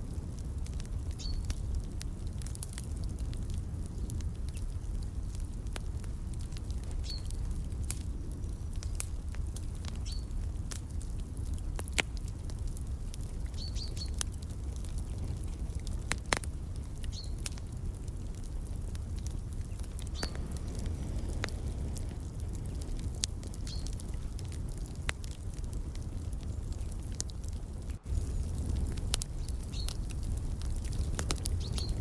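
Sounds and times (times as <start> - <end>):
wood fire crackling and popping: 0.0 - 32.0
small bird chirping: 1.2 - 1.5, 7.0 - 7.3, 10.0 - 10.3, 13.5 - 14.2, 17.1 - 17.4, 20.1 - 20.7, 23.6 - 23.9, 29.4 - 30.0, 31.6 - 32.0
steady low rumble: 14.2 - 32.0.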